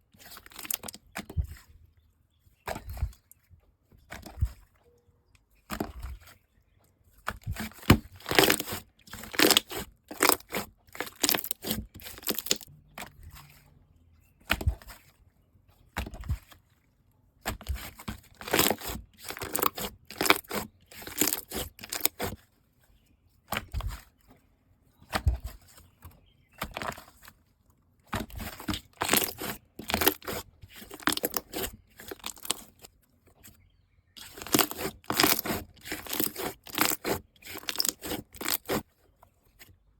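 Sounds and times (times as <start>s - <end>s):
slime crackling and popping: 8.2s - 12.7s, 18.4s - 22.1s, 28.6s - 32.7s, 34.2s - 38.8s.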